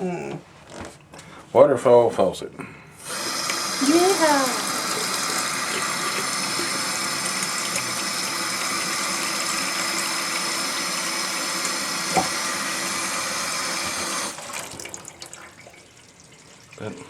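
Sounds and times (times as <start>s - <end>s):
water running into a sink: 3.0s - 17.0s
short knock: 12.1s - 12.4s.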